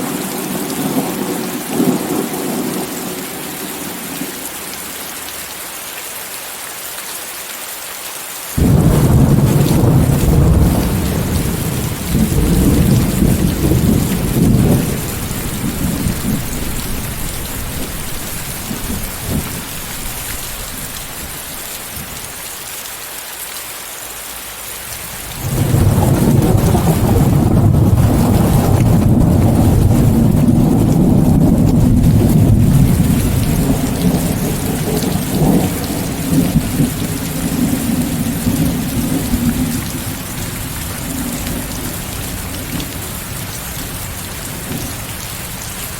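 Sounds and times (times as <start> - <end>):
heavy rain: 0.0 - 45.9
rolling thunder: 8.6 - 22.3, 25.2 - 45.6.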